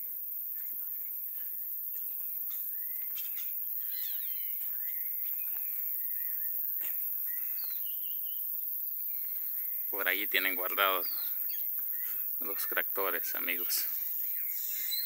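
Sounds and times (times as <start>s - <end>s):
faint outdoor hiss: 0.0s - 15.0s
birds chirping and whistling: 2.7s - 6.6s, 7.2s - 8.4s, 10.8s - 12.3s, 13.7s - 15.0s.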